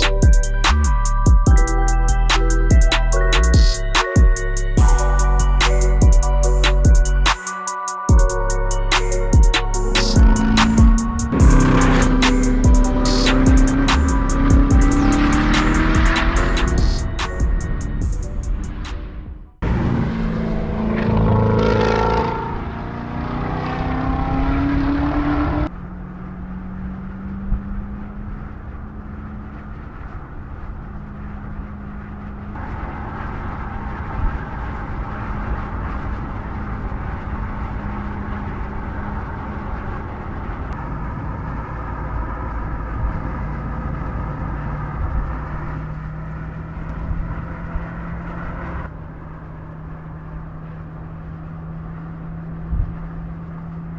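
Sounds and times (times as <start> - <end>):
car engine revving: 8.2 - 49.6.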